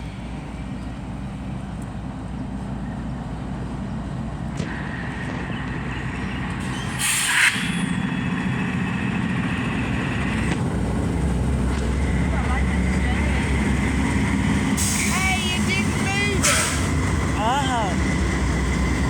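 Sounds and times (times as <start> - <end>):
diesel locomotives rumbling past: 0.0 - 19.0
high steady whine: 4.5 - 11.4.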